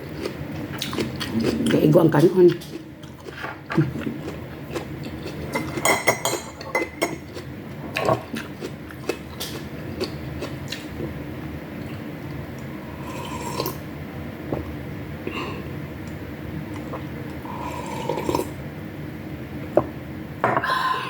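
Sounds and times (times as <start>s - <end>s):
cutlery clinking on a plate: 5.6s - 7.2s.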